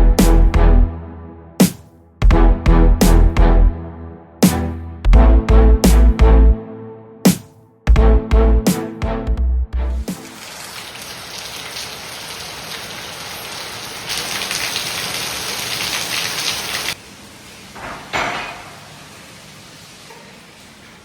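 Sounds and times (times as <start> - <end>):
heavy rain falling: 10.1 - 21.0.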